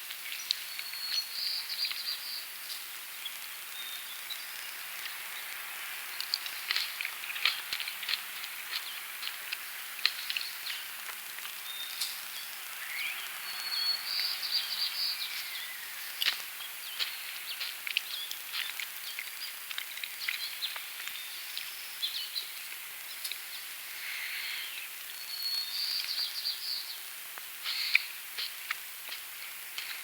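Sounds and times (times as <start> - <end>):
steady outdoor hiss: 0.0 - 30.0
songbirds chirping and singing: 11.7 - 19.6, 20.2 - 27.0.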